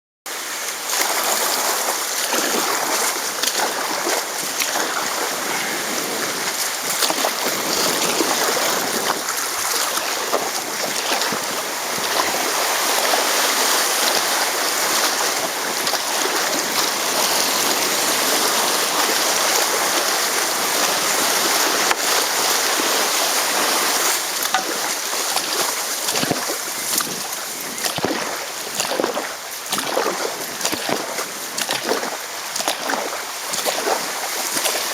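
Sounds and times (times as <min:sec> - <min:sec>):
river water rushing: 0:00.3 - 0:34.9
short splashes: 0:00.9 - 0:34.9.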